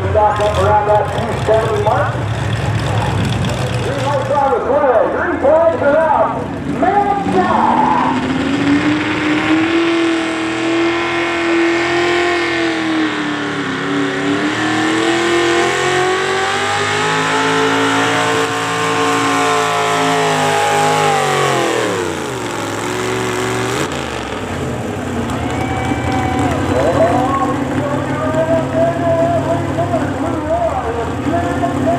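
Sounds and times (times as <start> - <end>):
tractor engine at full throttle: 0.0 - 31.9.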